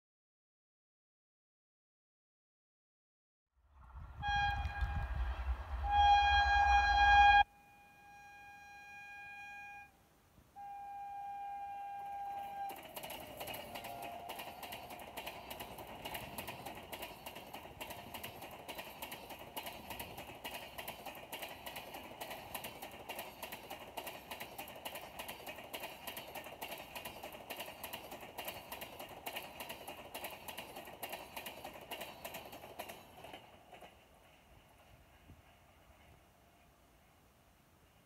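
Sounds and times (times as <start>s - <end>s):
train rumble: 3.6s - 9.4s, 11.6s - 38.0s
train wheels clattering on rails: 12.3s - 38.0s.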